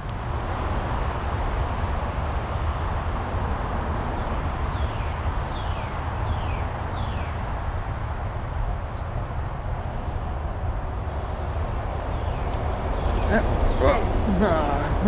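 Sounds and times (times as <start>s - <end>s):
rushing outdoor background: 11.5s - 15.0s.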